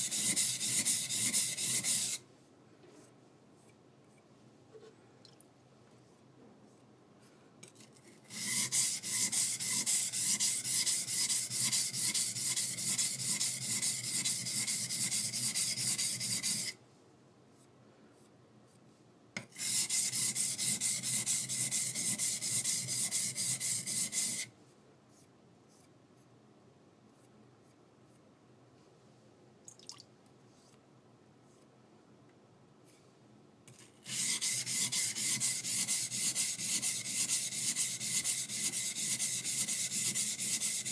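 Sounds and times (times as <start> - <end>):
knife scraping on whetstone: 0.0 - 2.2, 7.6 - 16.8, 19.4 - 24.5, 34.0 - 40.9.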